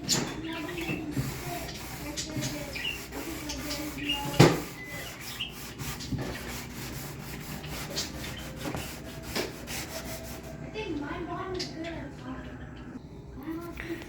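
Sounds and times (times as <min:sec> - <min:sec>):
sanding wood: 0:00.4 - 0:10.6.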